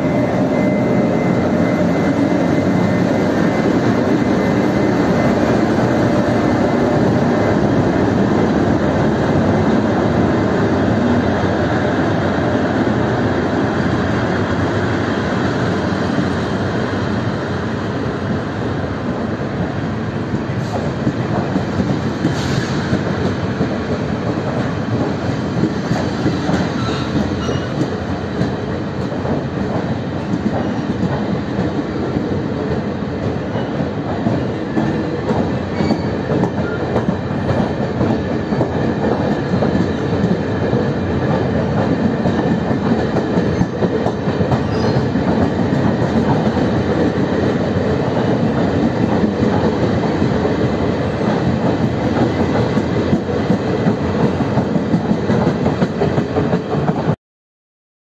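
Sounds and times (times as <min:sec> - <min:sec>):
train wheels clattering on rails: 0:00.0 - 0:18.4, 0:19.0 - 0:57.2.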